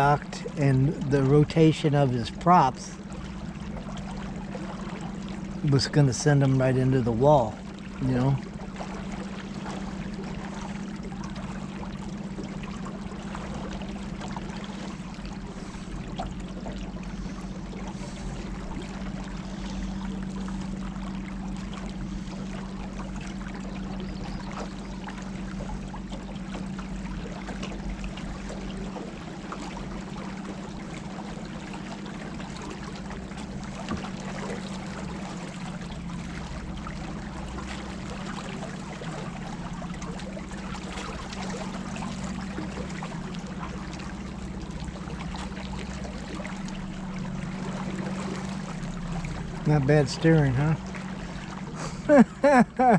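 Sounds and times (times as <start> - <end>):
low even hum: 0.0 - 52.9
river water rushing and splashing: 28.5 - 52.9.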